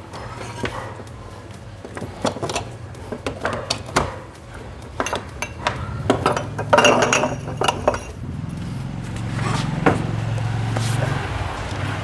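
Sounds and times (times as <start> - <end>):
metallic clinks of tools: 0.0 - 8.2
low steady hum: 0.0 - 12.0.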